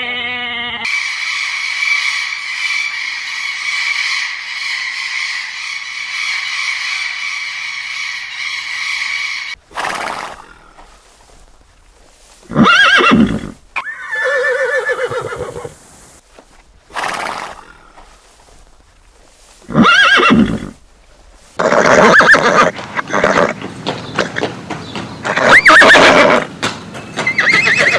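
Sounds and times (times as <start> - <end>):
animal calling: 0.0 - 11.0, 21.6 - 27.9.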